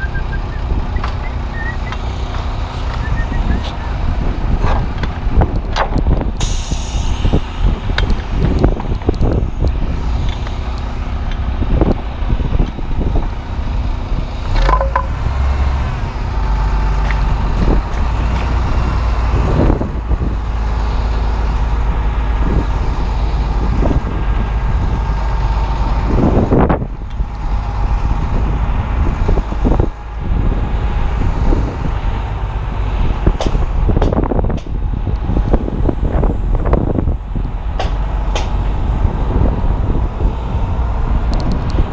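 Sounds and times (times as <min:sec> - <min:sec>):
wind buffeting microphone: 0:00.0 - 0:41.9
knocks and clatter: 0:04.6 - 0:06.3, 0:14.4 - 0:15.4.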